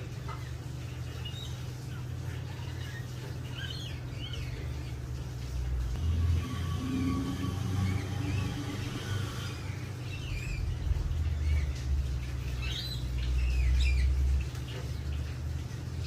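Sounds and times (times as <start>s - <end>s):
small birds chirping: 0.0s - 16.0s
steady low rumble: 5.0s - 15.9s.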